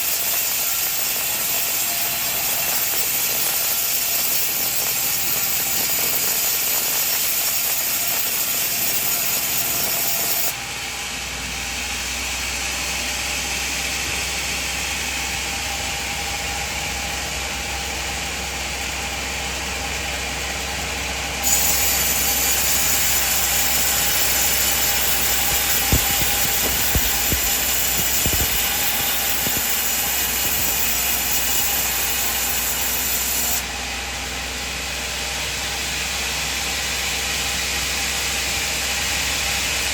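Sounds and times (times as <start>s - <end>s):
band saw sawing wood: 21.5s - 33.5s
machine hum: 22.8s - 31.6s
sharp knocks: 24.6s - 30.8s.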